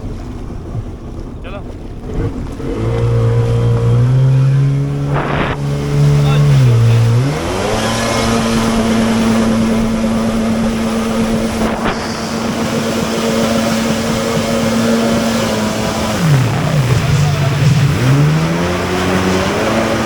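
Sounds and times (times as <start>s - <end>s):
motorboat engine revving: 0.0s - 20.0s.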